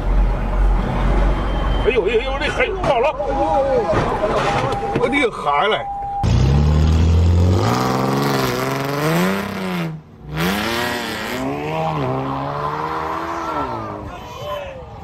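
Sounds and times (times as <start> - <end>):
car accelerating away: 6.2 - 14.0
sports car engines revving: 6.2 - 14.1.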